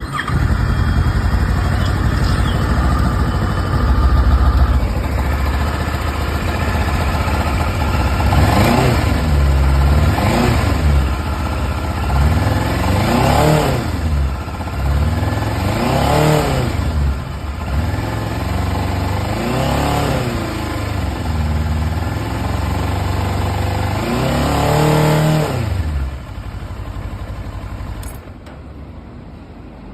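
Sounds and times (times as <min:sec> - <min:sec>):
motorcycle engine revving: 0:00.0 - 0:28.2.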